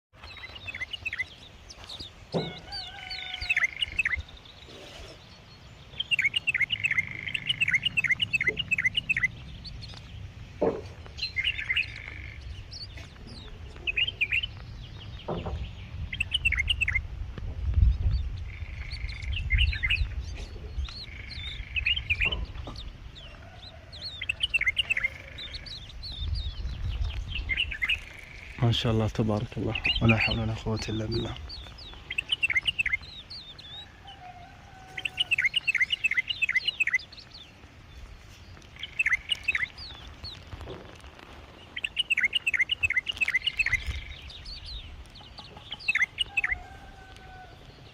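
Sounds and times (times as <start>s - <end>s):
bird chirping: 0.1s - 47.9s
low rumble: 24.8s - 28.7s.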